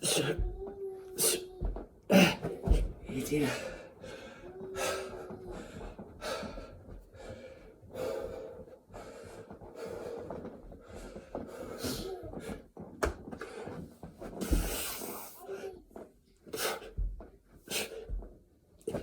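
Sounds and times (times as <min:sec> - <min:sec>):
man breathing hard: 0:03.4 - 0:12.6, 0:14.4 - 0:15.4.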